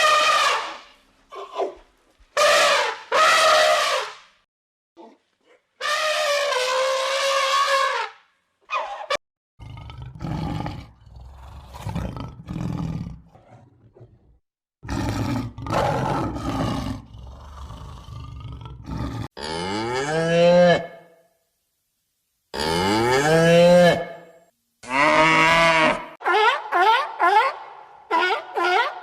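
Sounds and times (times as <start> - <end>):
animal calls: 25.1 - 29.0.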